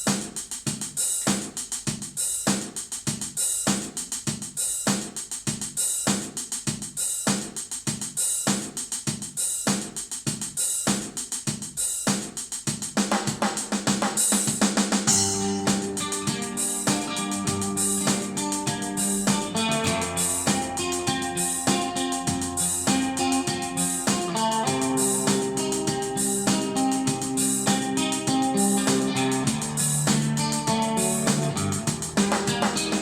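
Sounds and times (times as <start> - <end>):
drum kit beat with cymbals: 0.0 - 33.0
held pitched notes: 15.1 - 33.0.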